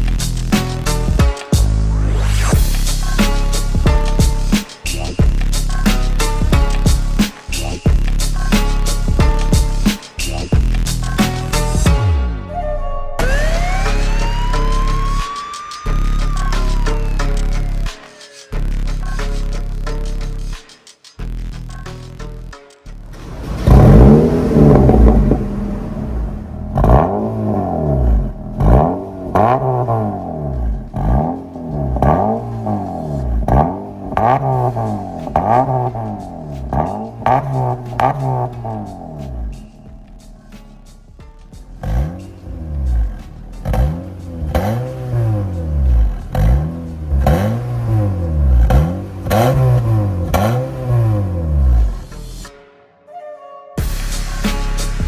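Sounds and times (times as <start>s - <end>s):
car engine revving: 13.2s - 19.2s, 23.0s - 52.4s.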